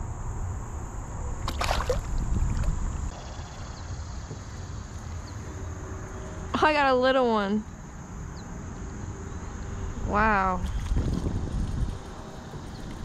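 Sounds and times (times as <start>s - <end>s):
cricket trill: 0.0s - 13.0s
water splashing around boat: 1.4s - 3.0s.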